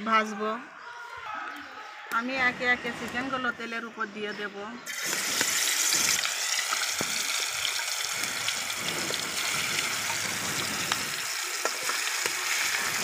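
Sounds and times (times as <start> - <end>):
chicken frying in hot oil: 4.9 - 13.0
crackling pops: 4.9 - 13.0.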